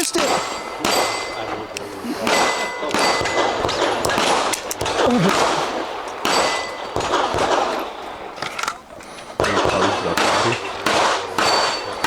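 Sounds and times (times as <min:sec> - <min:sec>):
steel plate ringing ding: 0:00.0 - 0:04.5, 0:06.2 - 0:07.1, 0:09.5 - 0:12.0
pistol shots: 0:00.0 - 0:12.0.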